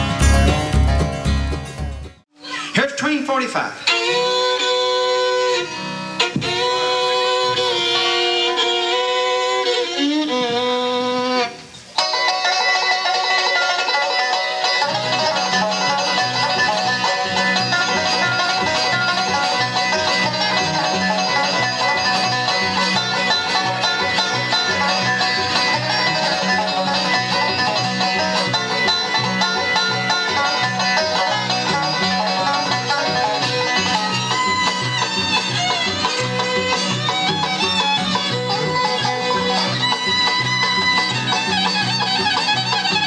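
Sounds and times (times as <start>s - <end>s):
banjo picking: 0.0s - 2.2s, 3.9s - 43.0s
bass notes: 0.0s - 2.2s, 14.9s - 43.0s
acoustic guitar: 0.0s - 2.7s, 4.6s - 43.0s.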